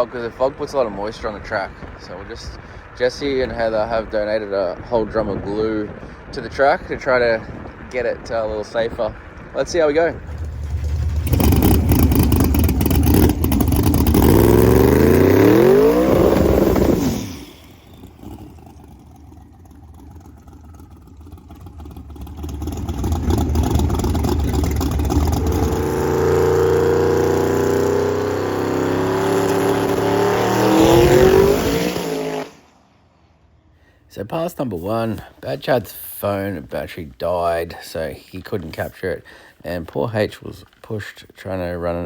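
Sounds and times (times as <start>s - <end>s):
race car engine at full throttle: 9.2s - 32.7s.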